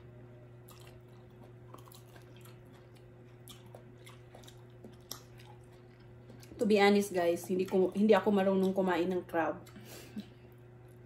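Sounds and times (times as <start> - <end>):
low hum: 0.0 - 11.0
person chewing: 0.6 - 6.7, 9.6 - 11.0.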